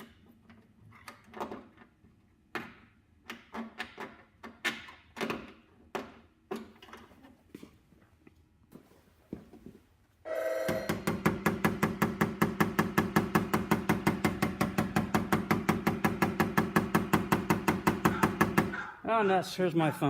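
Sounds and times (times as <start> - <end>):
phone ringing: 10.3 - 11.1.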